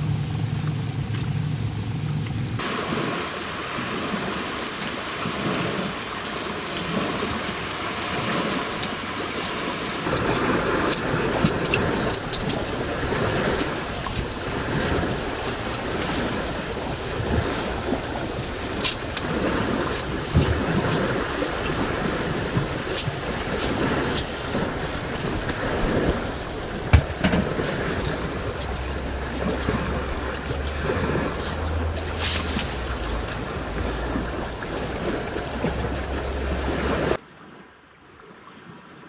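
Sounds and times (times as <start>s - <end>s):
carrots sizzling in a pan: 0.0s - 10.1s
sharp pops and crackles: 0.0s - 10.1s.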